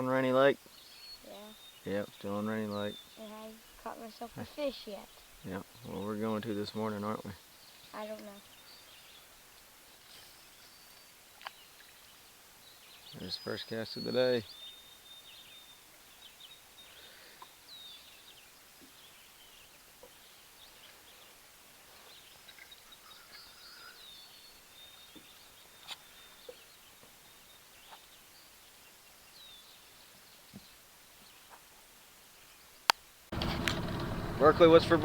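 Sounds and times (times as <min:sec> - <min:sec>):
birds chirping and whistling: 0:13.1 - 0:15.2
faint clicks: 0:32.9 - 0:34.4.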